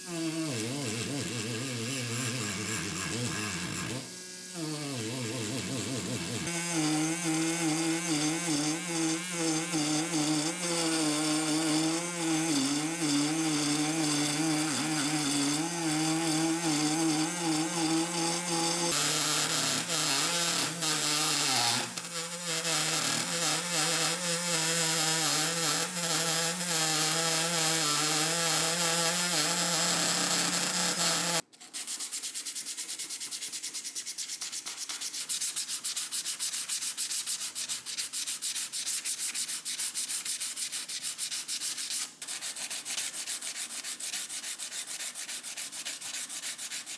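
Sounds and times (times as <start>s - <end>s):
power sander motor hum: 0.1s - 31.4s.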